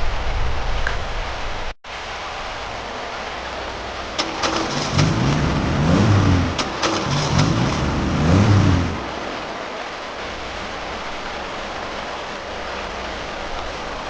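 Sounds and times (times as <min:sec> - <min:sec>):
steady hiss: 0:00.0 - 0:14.0
car engine revving: 0:04.2 - 0:09.8.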